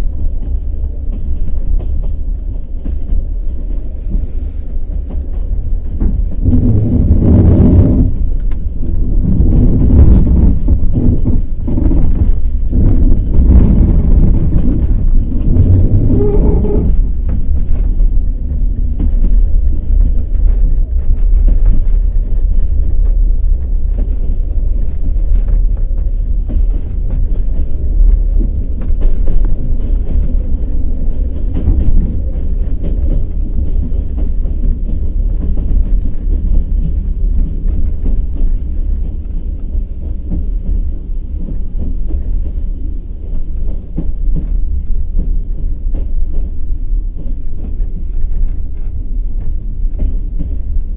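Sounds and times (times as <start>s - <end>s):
train rumbling on track: 0.0s - 50.9s
train wheels clattering over rails: 0.0s - 50.9s.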